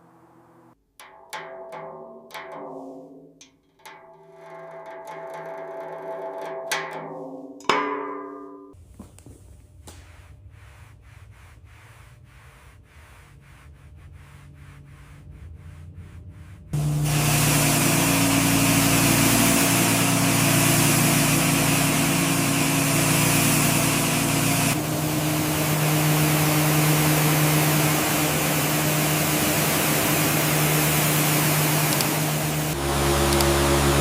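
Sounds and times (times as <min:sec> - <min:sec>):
workshop machine hum and hiss: 0:08.8 - 0:34.0.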